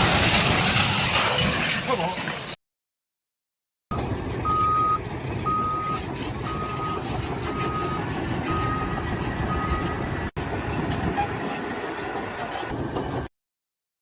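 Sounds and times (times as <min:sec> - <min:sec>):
reversing alarm beeping: 0:03.9 - 0:10.2
construction machine engine: 0:03.9 - 0:13.3.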